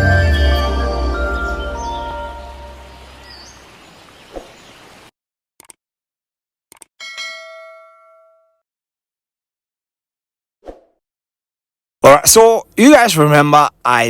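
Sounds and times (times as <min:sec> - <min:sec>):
intro music: 0:00.0 - 0:03.1
short clicks: 0:05.6 - 0:05.8, 0:06.7 - 0:06.9
bell-like ding: 0:07.0 - 0:08.6.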